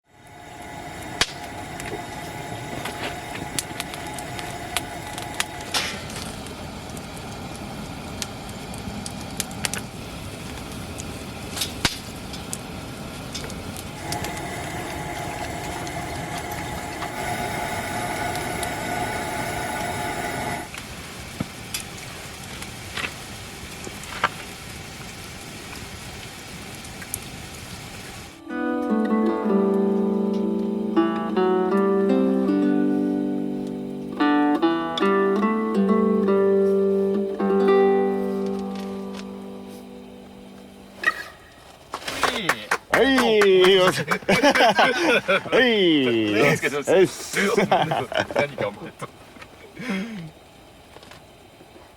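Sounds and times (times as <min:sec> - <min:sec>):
humming drone with tones: 0:00.1 - 0:07.6, 0:13.8 - 0:20.7, 0:28.4 - 0:41.0
campfire crackling and popping: 0:00.1 - 0:28.5, 0:29.6 - 0:51.9.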